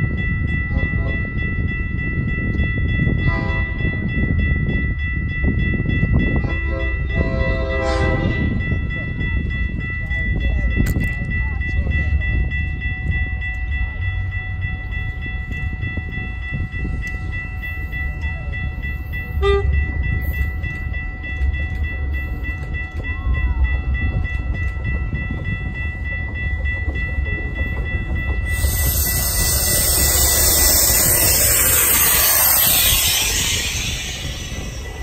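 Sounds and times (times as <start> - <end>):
train rumbling past: 11.4 - 35.0
high ringing tones: 28.2 - 35.0
loud rushing hiss: 28.5 - 35.0.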